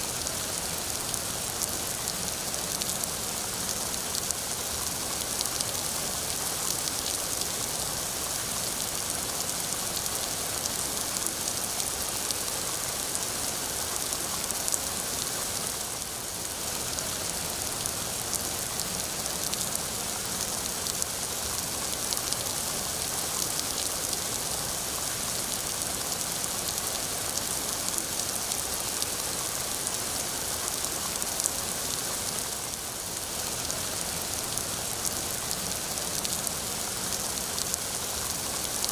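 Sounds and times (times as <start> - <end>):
steady rainfall: 0.0 - 38.9.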